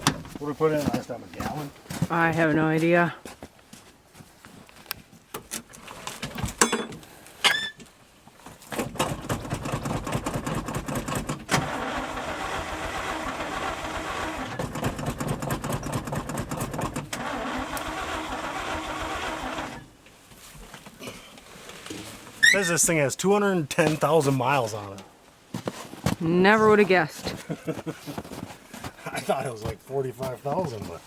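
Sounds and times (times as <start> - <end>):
short squeak: 7.4 - 7.8, 22.4 - 22.8
starter cranking truck engine: 8.8 - 19.9.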